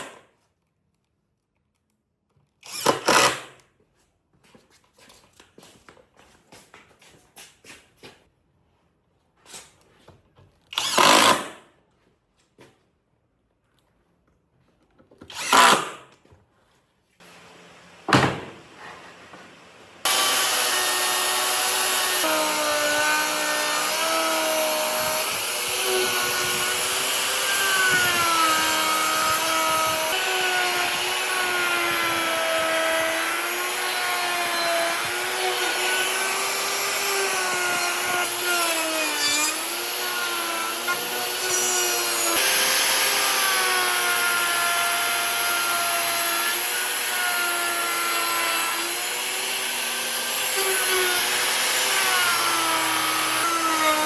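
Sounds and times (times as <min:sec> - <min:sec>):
power tool working wood: 0:20.0 - 0:54.0.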